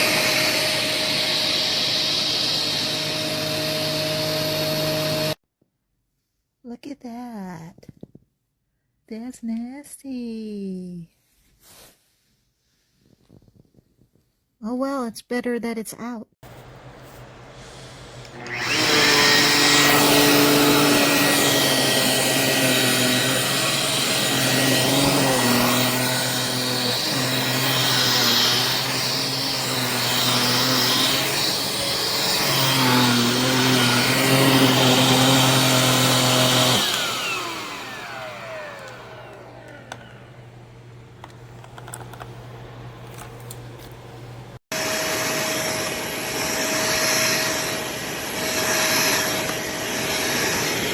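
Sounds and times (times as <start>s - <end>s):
vacuum cleaner motor whine: 0.0s - 5.4s, 18.1s - 41.8s, 44.7s - 50.9s
motor spinning down: 18.3s - 40.4s.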